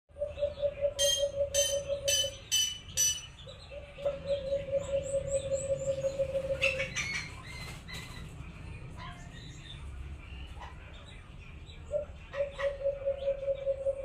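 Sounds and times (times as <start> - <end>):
dove pulsing coo: 0.1 - 2.5, 3.7 - 7.2, 11.9 - 14.0
high bird chirps: 0.3 - 8.1.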